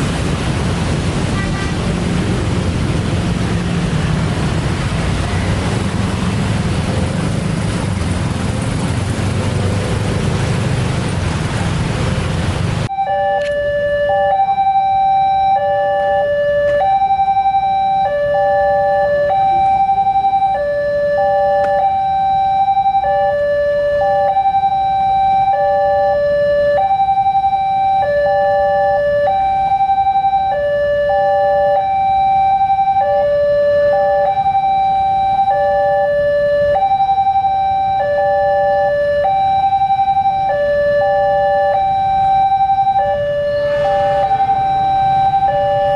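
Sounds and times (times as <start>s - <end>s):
loud rushing vehicle: 0.0s - 13.0s, 31.8s - 45.9s
railroad crossing alarm: 12.8s - 45.9s.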